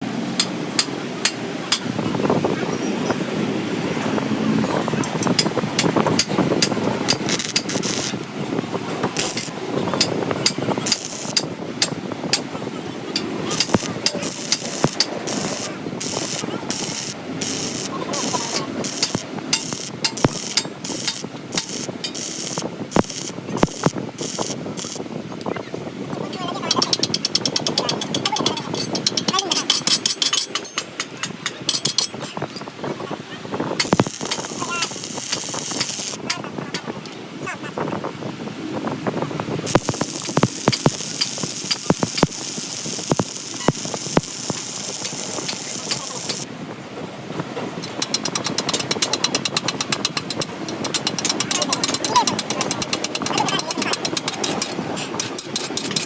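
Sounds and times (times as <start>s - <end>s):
sharp clicks: 5.4s - 8.4s, 13.2s - 25.0s, 33.8s - 36.2s, 39.7s - 46.5s
welding arc crackling: 5.4s - 25.1s, 33.8s - 36.4s, 39.6s - 46.5s.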